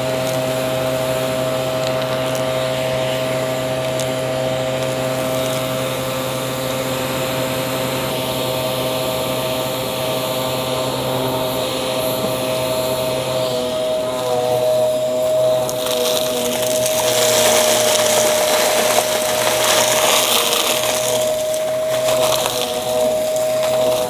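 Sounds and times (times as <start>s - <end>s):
vacuum cleaner motor whine: 0.0s - 24.0s
debris clicks: 15.6s - 24.0s.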